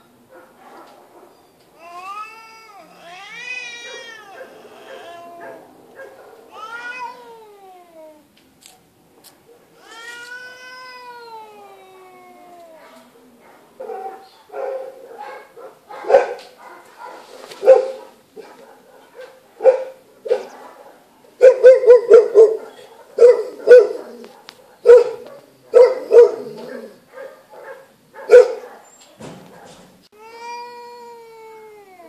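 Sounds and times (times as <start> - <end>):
cat yowling: 1.8 - 5.8, 6.5 - 8.3, 9.8 - 13.1, 30.2 - 32.0.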